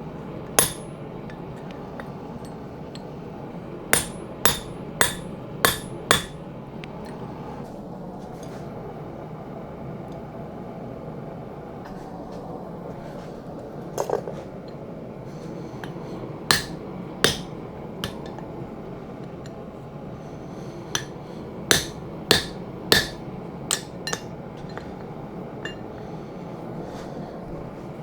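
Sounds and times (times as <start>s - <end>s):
hammer striking steel on anvil: 0.6s - 3.1s, 3.9s - 6.4s, 15.8s - 18.5s, 20.9s - 26.1s.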